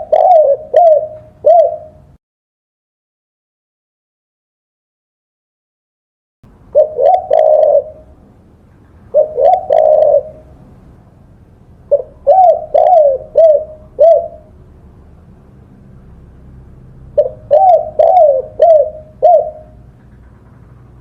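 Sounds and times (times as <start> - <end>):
dove cooing: 0.0 - 2.2, 6.7 - 8.2, 9.1 - 10.7, 11.9 - 14.6, 17.1 - 20.0.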